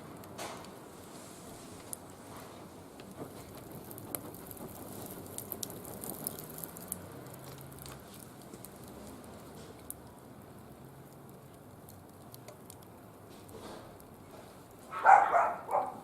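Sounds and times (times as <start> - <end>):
wood fire crackling: 0.0 - 16.0
sharp pops and snaps: 3.0 - 14.8.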